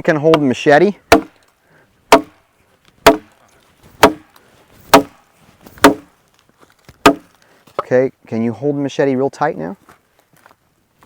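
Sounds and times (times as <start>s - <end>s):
machete spine struck knocking: 3.0s - 3.3s, 4.0s - 4.2s, 5.8s - 6.1s, 7.0s - 7.3s.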